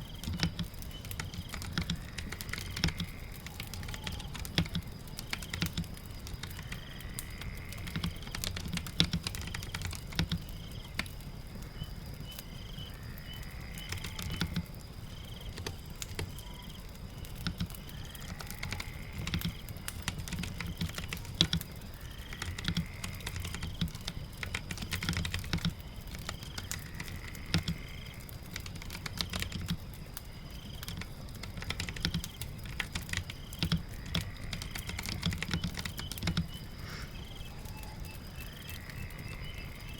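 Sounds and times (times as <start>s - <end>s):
rain patter: 0.0s - 39.9s
keyboard typing: 0.1s - 6.7s, 7.8s - 11.1s, 13.8s - 14.7s, 17.4s - 21.7s, 22.3s - 27.8s, 28.5s - 29.8s, 30.6s - 36.6s.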